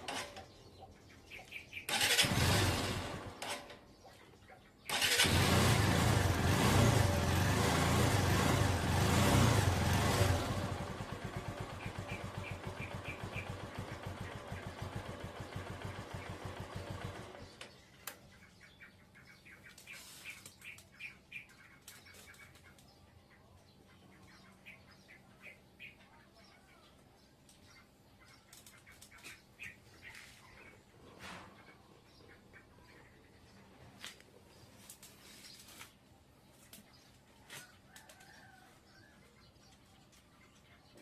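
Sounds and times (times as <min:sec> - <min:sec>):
birds chirping: 0:00.0 - 0:02.4, 0:03.2 - 0:05.3, 0:10.7 - 0:41.0
motorcycle engine running: 0:02.0 - 0:03.4, 0:05.0 - 0:17.8.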